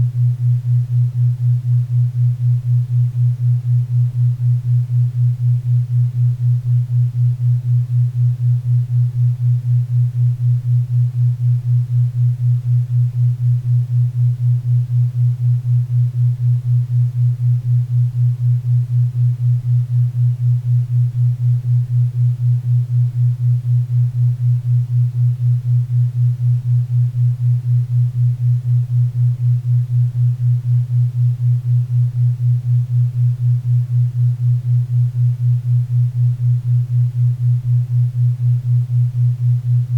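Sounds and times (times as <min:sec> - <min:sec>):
low pulsing pure tone: 0:00.0 - 0:39.9.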